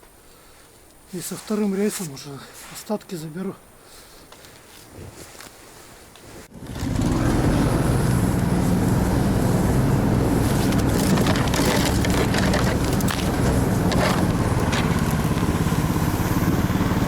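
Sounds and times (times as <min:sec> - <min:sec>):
small atv engine running: 0:06.5 - 0:17.0
clicks and crunches: 0:10.5 - 0:15.5.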